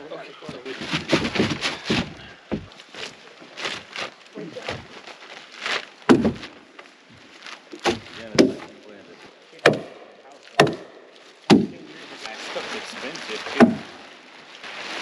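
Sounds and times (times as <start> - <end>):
irregular knocks and thuds: 0.4 - 5.1, 6.0 - 8.8, 9.6 - 11.8, 13.5 - 14.0.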